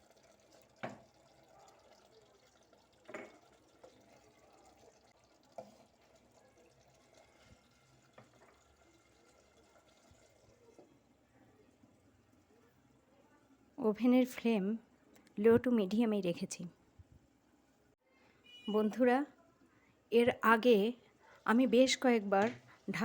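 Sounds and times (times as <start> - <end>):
chicken simmering in a pot: 0.0 - 13.8.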